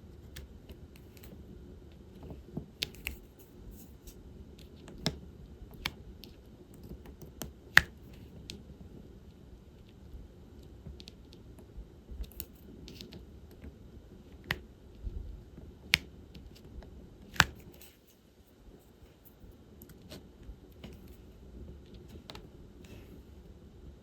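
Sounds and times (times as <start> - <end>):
small plastic clicks and taps: 2.2 - 3.3, 4.6 - 8.6, 17.3 - 18.0.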